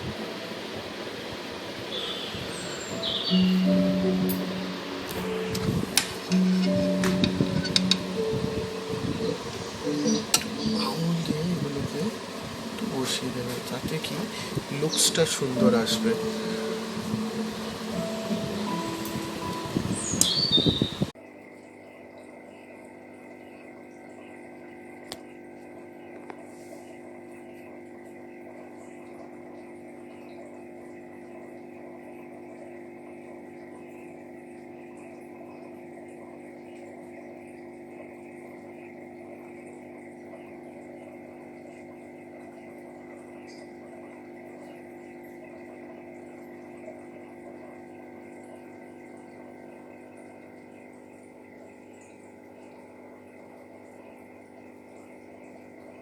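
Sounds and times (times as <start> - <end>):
faint watery hiss: 1.6 - 21.1.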